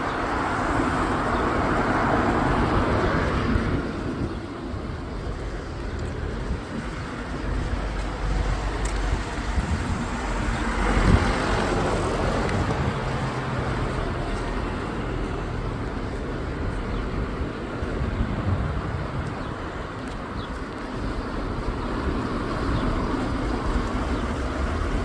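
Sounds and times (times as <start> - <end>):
steady rushing noise: 0.0 - 25.0
motor vehicle passing: 7.1 - 16.6.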